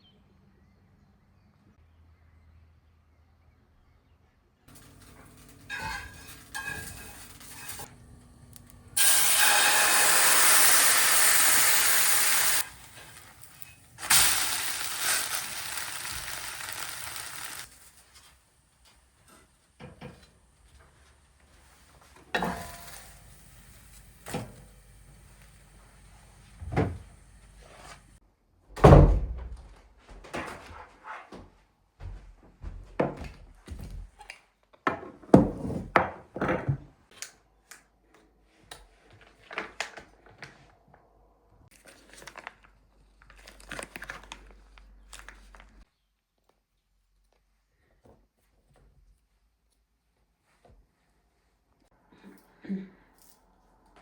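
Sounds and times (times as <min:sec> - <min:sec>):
food sizzling in frying pan: 0:04.8 - 0:07.9, 0:08.9 - 0:18.0.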